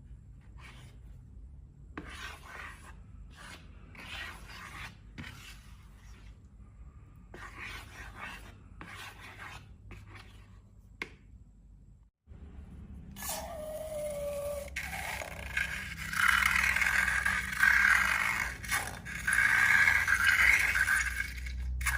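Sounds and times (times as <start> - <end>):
slime scraping and rubbing: 2.0 - 6.4, 13.2 - 21.9.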